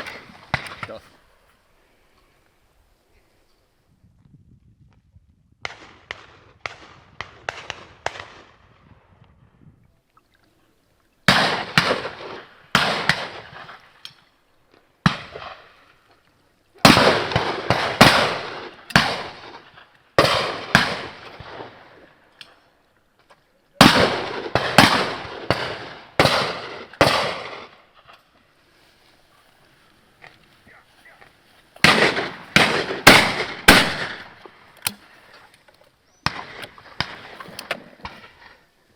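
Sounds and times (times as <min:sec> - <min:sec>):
shotgun shots echoing: 0:00.0 - 0:01.0, 0:05.6 - 0:08.6, 0:11.3 - 0:13.9, 0:15.0 - 0:15.7, 0:16.8 - 0:22.0, 0:23.8 - 0:28.1, 0:31.8 - 0:35.1, 0:36.2 - 0:38.3.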